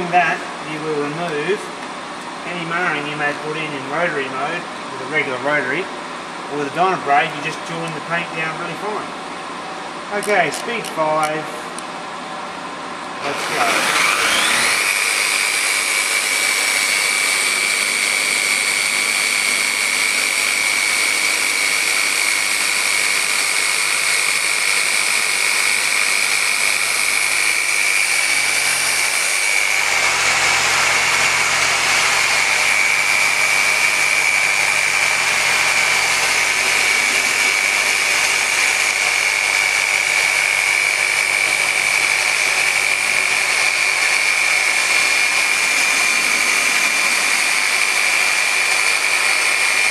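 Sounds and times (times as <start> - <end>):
orbital polisher whining: 13.2 - 49.9.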